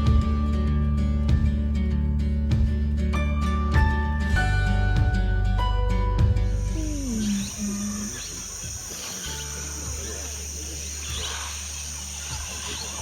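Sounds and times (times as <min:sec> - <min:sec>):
music track: 0:00.0 - 0:11.3
high-pitched insect chorus: 0:06.4 - 0:13.0.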